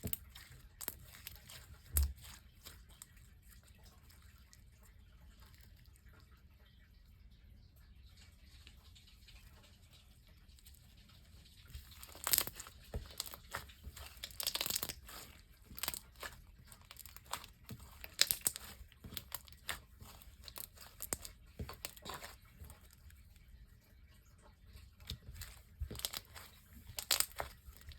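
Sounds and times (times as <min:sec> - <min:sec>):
slime squishing and popping: 0:00.0 - 0:03.1, 0:11.8 - 0:23.1, 0:25.0 - 0:27.9.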